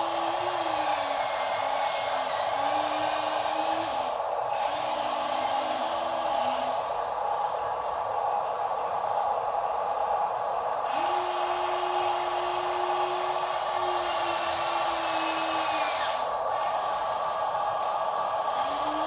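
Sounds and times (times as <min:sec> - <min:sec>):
toy electric motor whining: 0:12.8 - 0:16.8.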